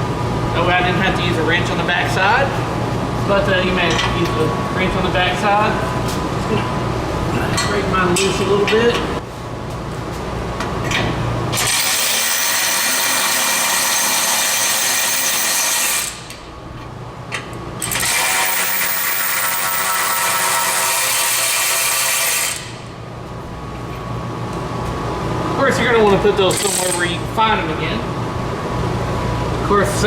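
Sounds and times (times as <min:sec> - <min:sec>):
handheld power tool running: 0:11.6 - 0:16.2, 0:17.8 - 0:22.7.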